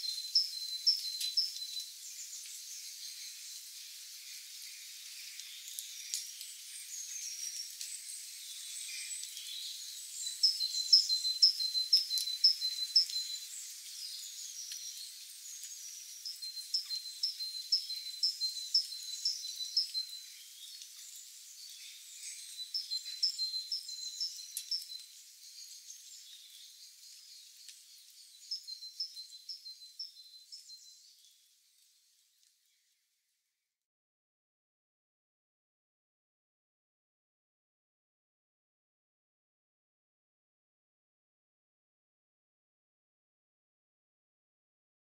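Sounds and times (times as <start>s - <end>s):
faint bird chirps: 0.0s - 33.1s
songbird singing high notes: 10.2s - 13.5s.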